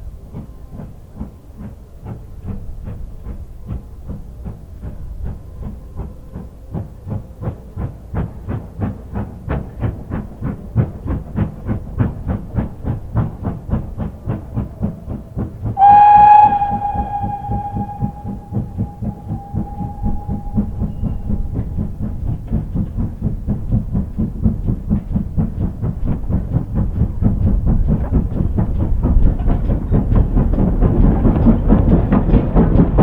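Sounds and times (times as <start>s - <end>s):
steam locomotive exhaust beats: 0.0s - 33.0s
steam whistle: 15.8s - 22.0s.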